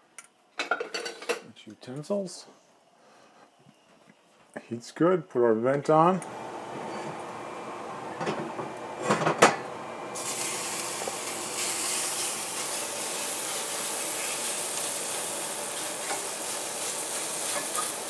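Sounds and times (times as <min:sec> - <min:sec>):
chicken sizzling in hot oil: 0:10.1 - 0:18.0
utensils clacking against a pan: 0:16.0 - 0:18.0.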